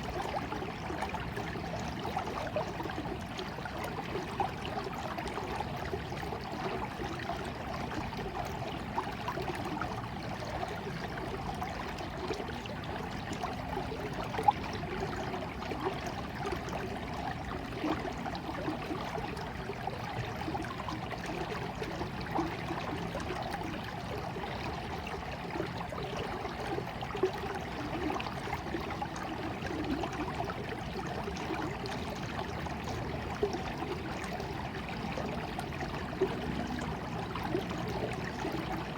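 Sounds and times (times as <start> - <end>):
stream of water flowing: 0.0 - 38.9.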